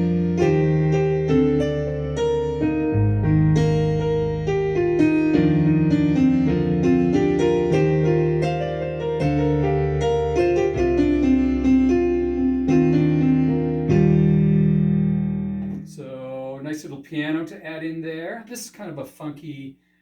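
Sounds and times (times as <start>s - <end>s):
synthesizer piano chords and melody: 0.0s - 15.9s.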